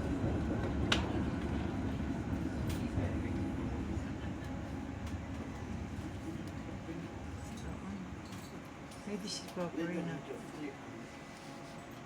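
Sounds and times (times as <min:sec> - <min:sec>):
tram rumbling on track: 0:00.0 - 0:08.8.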